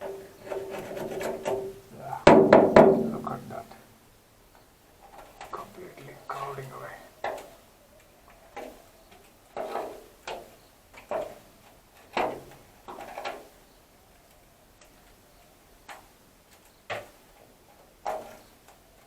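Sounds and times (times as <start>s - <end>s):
hand tool knocking on sheet metal: 0.6s - 3.4s.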